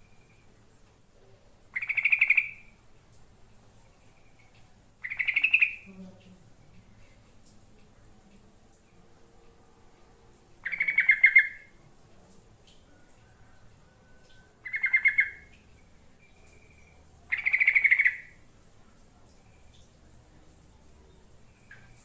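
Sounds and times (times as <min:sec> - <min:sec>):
bird chattering song: 0:01.8 - 0:02.7, 0:05.0 - 0:05.9, 0:10.6 - 0:11.7, 0:14.6 - 0:15.6, 0:16.5 - 0:18.4.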